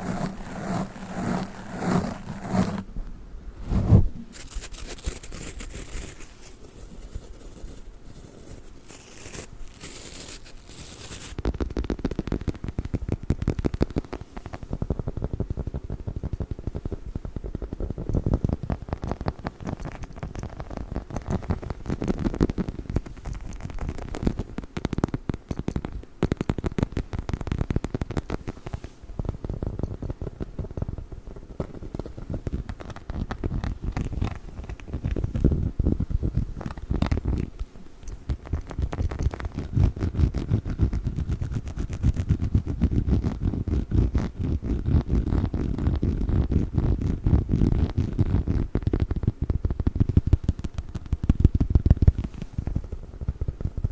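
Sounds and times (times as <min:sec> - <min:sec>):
toy scratching and rubbing: 0:00.0 - 0:02.9, 0:03.7 - 0:12.6.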